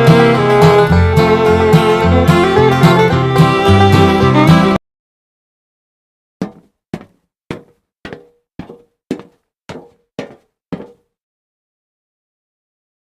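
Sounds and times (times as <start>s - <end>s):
short sharp knocks: 6.4s - 11.1s.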